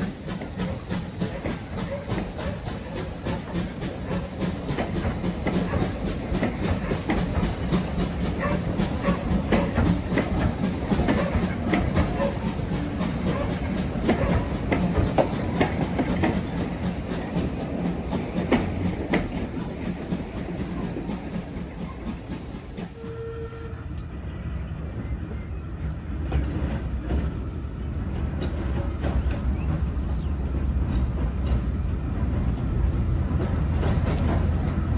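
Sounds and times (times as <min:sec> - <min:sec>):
train rumbling: 0:00.0 - 0:34.9
wheels clicking over rail joints: 0:00.3 - 0:23.0.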